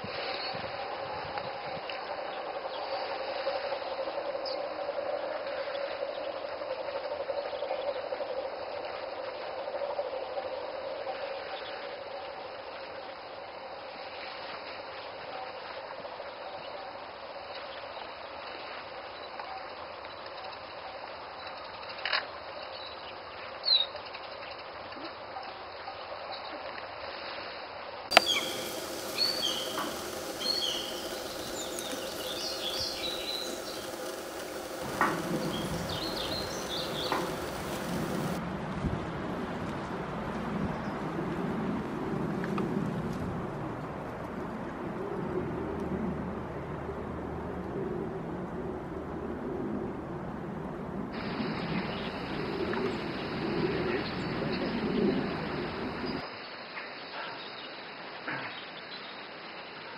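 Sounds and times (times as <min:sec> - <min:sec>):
steady background hiss: 0:00.0 - 0:24.9, 0:25.9 - 0:59.9
small birds chirping: 0:28.1 - 0:38.4.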